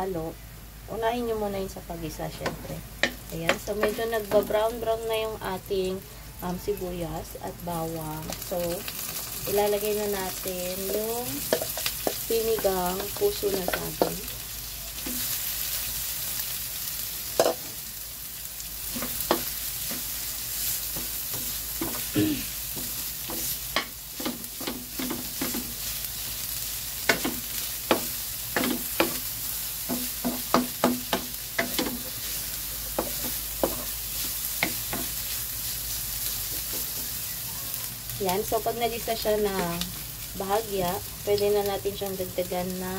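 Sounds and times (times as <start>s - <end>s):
food sizzling in a wok: 0.0s - 42.9s
wooden spatula knocking and scraping: 2.4s - 4.5s.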